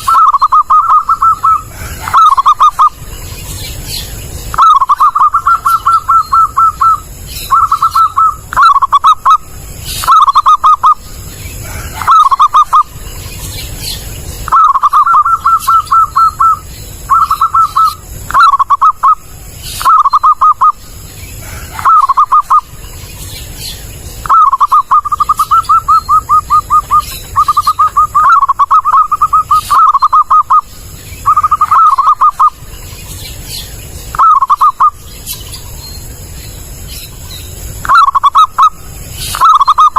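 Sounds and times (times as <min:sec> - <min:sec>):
dove cooing loudly: 0:00.0 - 0:03.1, 0:04.5 - 0:13.0, 0:14.4 - 0:22.8, 0:24.2 - 0:32.7, 0:34.1 - 0:35.0, 0:37.8 - 0:39.9.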